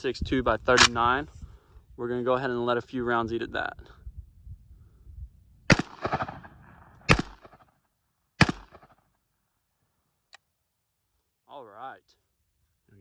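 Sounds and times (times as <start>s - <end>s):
rifle shots with echo: 5.7s - 7.6s, 8.4s - 9.0s
rolling echo: 5.7s - 7.6s.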